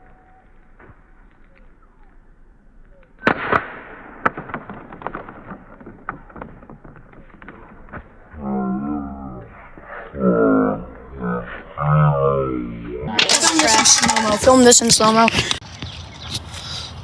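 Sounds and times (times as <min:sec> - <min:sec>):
small ticks and pops: 0:00.0 - 0:08.2.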